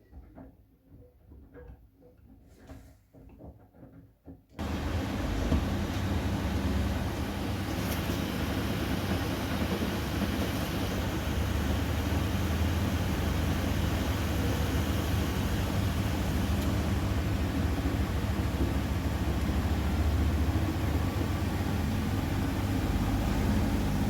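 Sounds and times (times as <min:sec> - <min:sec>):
laundry machine humming: 0:04.6 - 0:24.0.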